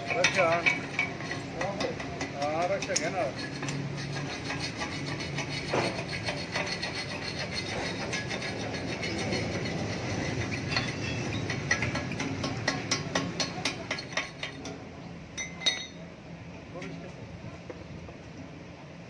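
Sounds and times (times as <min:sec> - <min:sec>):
metal scraping and rasping: 0:00.0 - 0:14.8.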